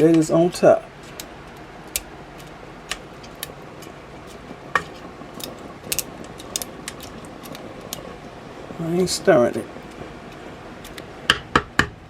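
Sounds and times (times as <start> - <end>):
dry spaghetti clicking: 0.1 - 12.0.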